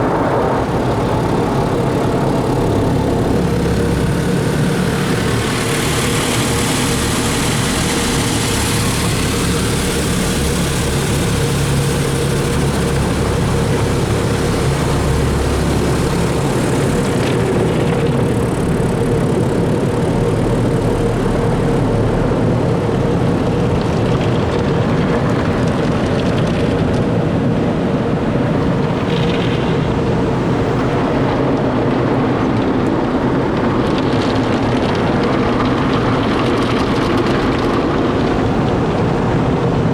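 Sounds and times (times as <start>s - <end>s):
car wash rushing noise: 0.0s - 24.9s
constant hum: 0.0s - 39.9s.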